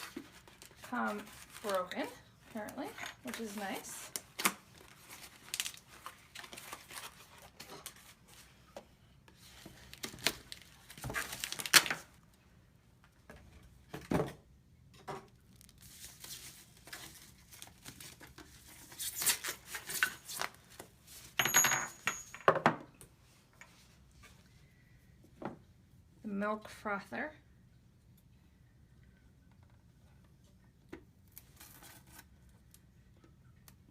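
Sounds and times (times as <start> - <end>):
packing materials rustling: 0.0 - 8.5, 9.4 - 12.2.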